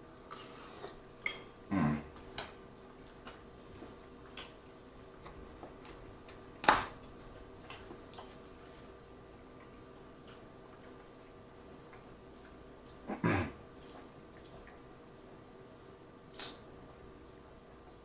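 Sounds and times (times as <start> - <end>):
wet mouth clicks and smacks: 16.3 - 16.6.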